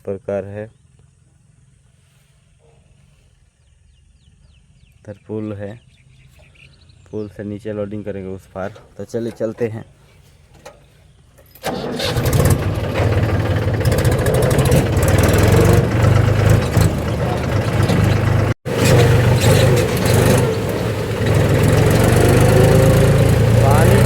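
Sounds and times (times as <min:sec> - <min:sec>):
tractor diesel engine running: 0:08.5 - 0:24.0.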